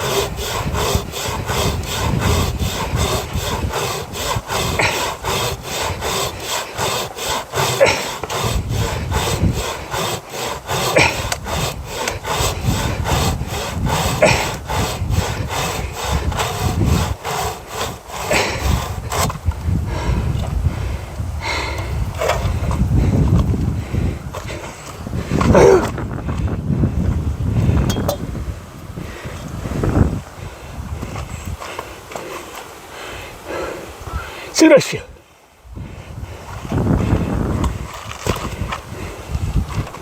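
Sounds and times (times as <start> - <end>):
hand saw cutting wood: 0.0 - 20.6, 21.4 - 26.5, 31.0 - 32.8, 36.5 - 40.0.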